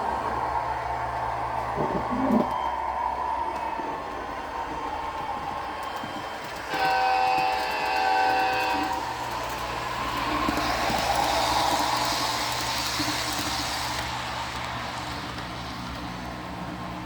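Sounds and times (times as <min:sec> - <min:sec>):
model train running: 0:02.4 - 0:17.0
model train horn: 0:06.7 - 0:09.2.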